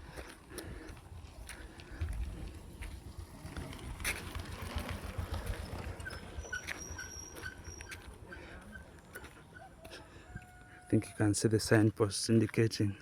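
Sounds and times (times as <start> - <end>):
wind rumbling on microphone: 0.0 - 6.8.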